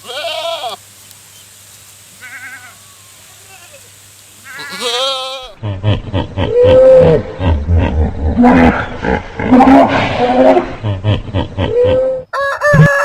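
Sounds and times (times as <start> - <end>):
sheep bleating: 0.0 - 0.8, 2.2 - 5.6
animal grunting: 5.6 - 12.2.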